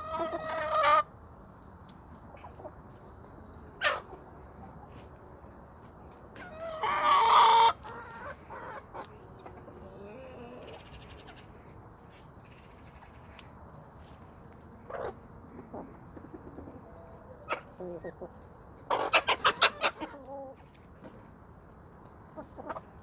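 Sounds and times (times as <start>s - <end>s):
chicken squawking: 0.0s - 1.1s, 6.4s - 9.1s, 18.9s - 20.5s
faint chicken clucks: 0.0s - 23.0s
chicken calling loudly: 6.4s - 9.1s, 18.9s - 20.5s.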